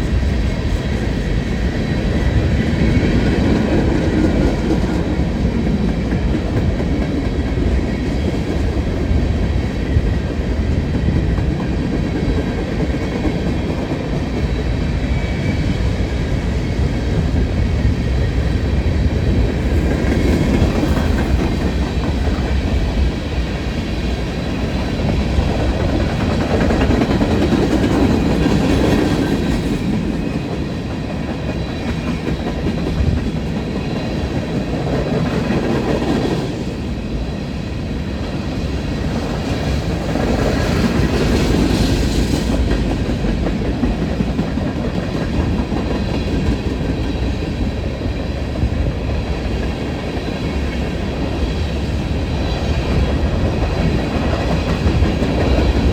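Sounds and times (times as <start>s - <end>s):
train wheels clattering on rails: 0.0s - 55.9s.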